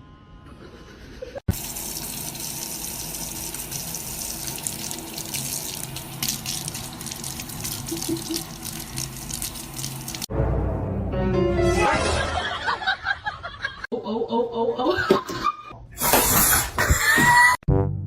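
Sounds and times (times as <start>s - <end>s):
tap water running into sink: 1.5s - 10.3s.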